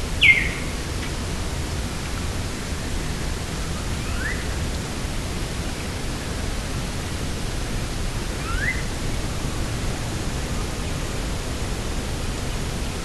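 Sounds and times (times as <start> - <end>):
wind and sea rushing: 0.0 - 13.0
bird rising call: 0.2 - 0.8, 4.0 - 4.5, 8.4 - 8.9.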